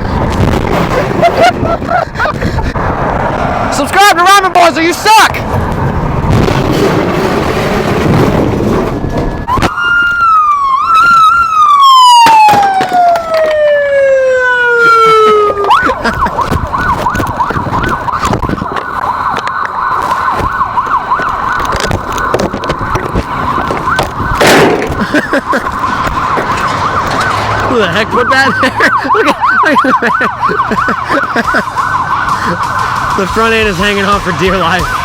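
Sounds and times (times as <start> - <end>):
siren wailing: 8.9 - 35.0.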